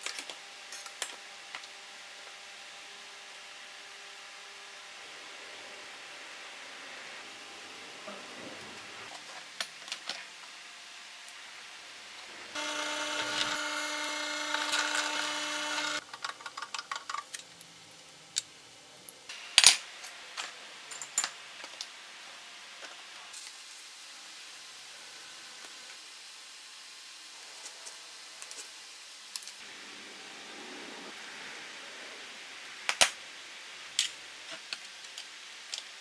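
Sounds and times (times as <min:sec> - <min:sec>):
circular saw whining: 0:12.5 - 0:16.0.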